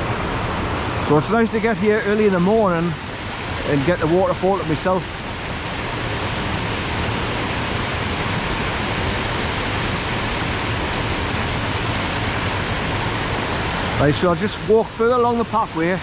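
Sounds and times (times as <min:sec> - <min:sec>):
waterfall rushing over rocks: 0:00.0 - 0:16.0.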